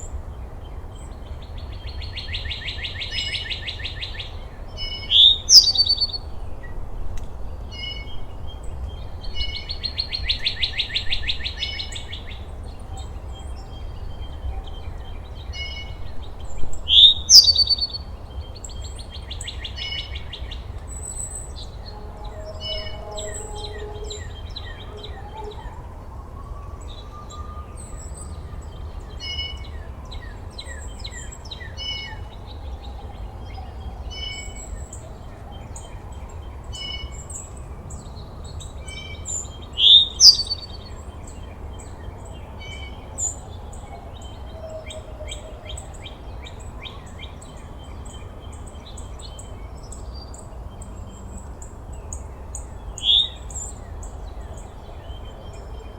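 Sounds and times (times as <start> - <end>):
songbirds chirping and trilling: 0.0 - 55.9
loud rising bird call: 5.1 - 6.2, 16.9 - 17.8
faint slow hum: 20.8 - 27.8.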